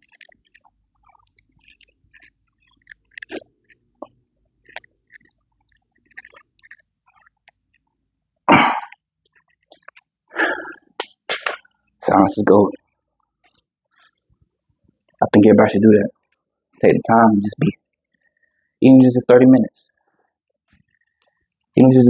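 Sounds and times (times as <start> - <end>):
faint clicks and rustles: 0.0 - 8.4, 9.0 - 12.0, 12.8 - 15.2, 19.8 - 21.8
person coughing: 8.5 - 9.0.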